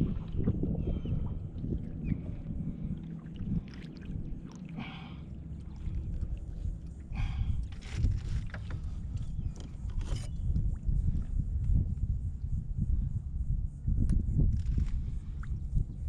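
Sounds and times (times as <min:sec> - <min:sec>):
water lapping against boat hull: 0:00.0 - 0:11.8
wind buffeting microphone: 0:00.0 - 0:16.0.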